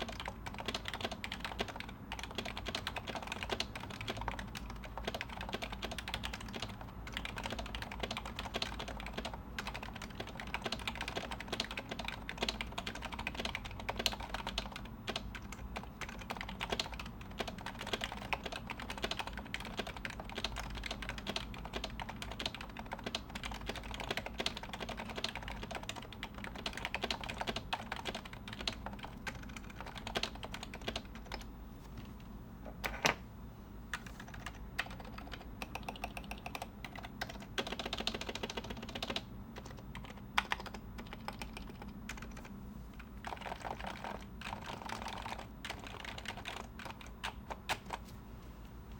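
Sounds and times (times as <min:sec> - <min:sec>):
muted keyboard typing: 0:00.0 - 0:31.5, 0:33.9 - 0:48.0.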